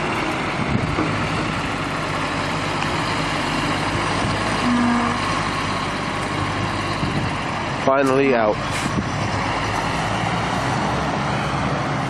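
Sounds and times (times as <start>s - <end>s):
heavy vehicle engine running: 0.0s - 12.0s
short steady tone: 4.6s - 5.4s.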